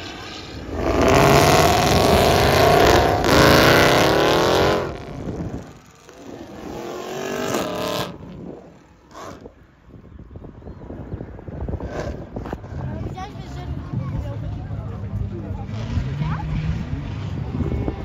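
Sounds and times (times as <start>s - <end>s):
car accelerating hard past: 0.0s - 8.4s
engine revving: 0.0s - 9.5s, 15.0s - 18.0s.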